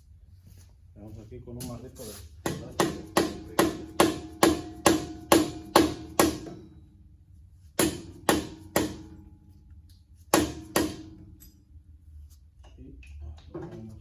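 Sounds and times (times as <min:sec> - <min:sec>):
sledgehammer striking metal: 0:02.4 - 0:06.9, 0:07.8 - 0:09.6, 0:10.3 - 0:11.6.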